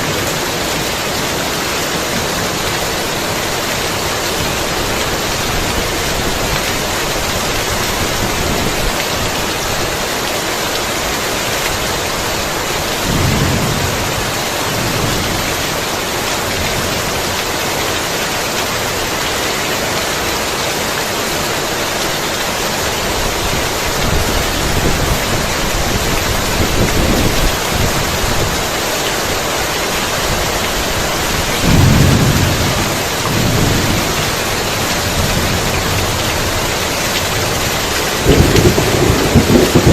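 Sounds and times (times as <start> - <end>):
heavy rain: 0.0 - 39.9
thunder rumbling: 11.8 - 17.4, 30.2 - 39.9.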